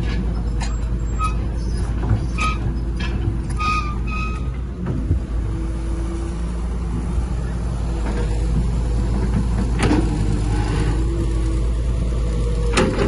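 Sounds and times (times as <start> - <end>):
heavy machinery engine rumble: 0.0 - 13.0
high-pitched squeals: 3.5 - 4.6.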